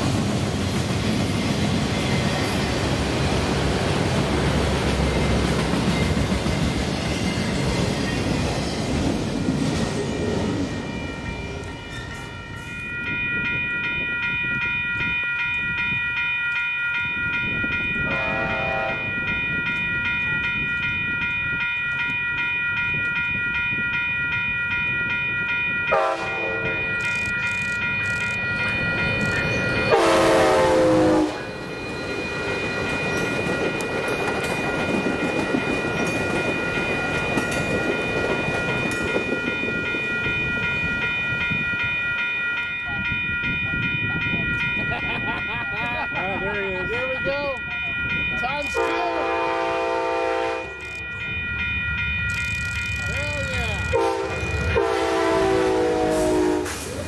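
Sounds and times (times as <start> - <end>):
train rail rumble: 0.0 - 16.2, 17.1 - 57.0
high ringing: 4.6 - 56.6
train horn blasts: 18.1 - 19.1, 25.9 - 26.8, 29.9 - 31.5, 48.8 - 50.8, 53.9 - 56.8.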